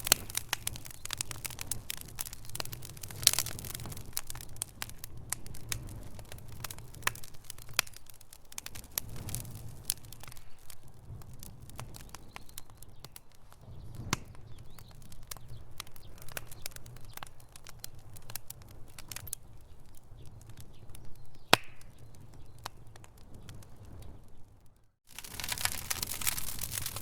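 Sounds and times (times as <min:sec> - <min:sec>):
flames rumbling: 0:00.0 - 0:27.0
sharp pops and snaps: 0:00.0 - 0:27.0
wood fire crackling: 0:00.0 - 0:27.0.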